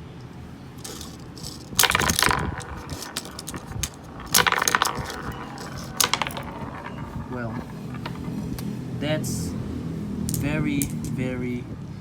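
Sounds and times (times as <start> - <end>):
plastic marbles clattering: 0.8 - 8.7, 10.3 - 11.2.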